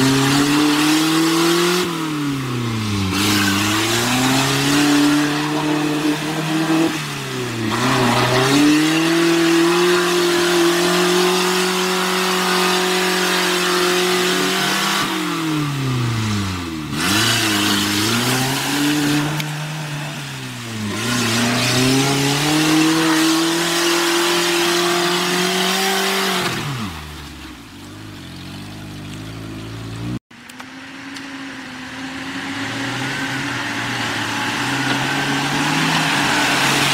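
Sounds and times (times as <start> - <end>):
engine revving hard: 0.0 - 27.2.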